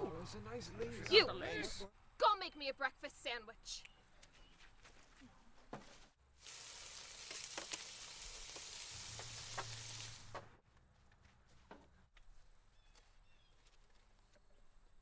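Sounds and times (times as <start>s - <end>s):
food sizzling in a pan: 6.4s - 10.4s.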